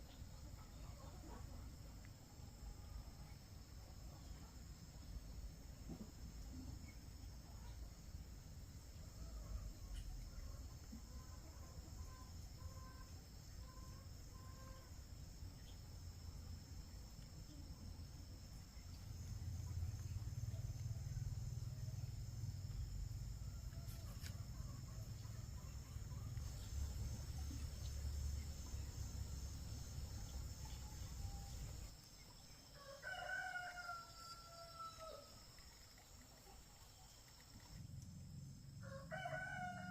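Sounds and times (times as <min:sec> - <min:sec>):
high insect drone: 0:02.6 - 0:39.9
rooster crowing: 0:32.8 - 0:35.3, 0:38.8 - 0:39.9.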